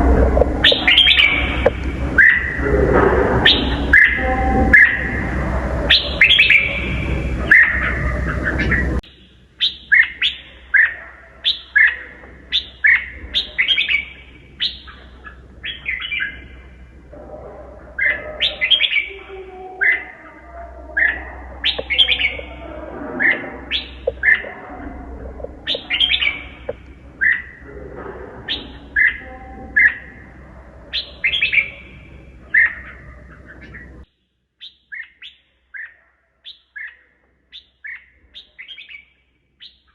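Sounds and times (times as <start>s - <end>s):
bird singing chirpy notes: 0.0s - 2.7s, 3.4s - 16.6s, 17.9s - 27.7s, 28.5s - 30.3s
background hum: 0.0s - 39.9s.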